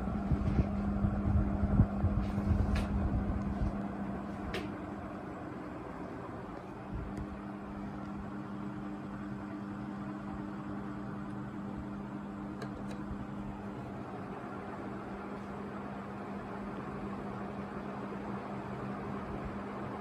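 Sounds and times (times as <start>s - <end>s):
air rushing from fan blades: 0.0s - 20.0s
ceiling fan motor hum: 0.0s - 20.0s.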